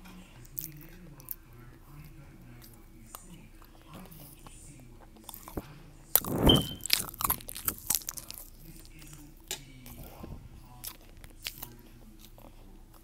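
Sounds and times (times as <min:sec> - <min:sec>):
person crunching food: 0:05.2 - 0:10.0, 0:10.7 - 0:12.7.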